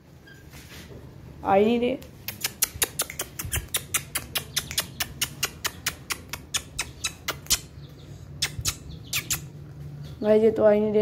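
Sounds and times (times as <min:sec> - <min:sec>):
birds chirping: 0:02.6 - 0:10.9.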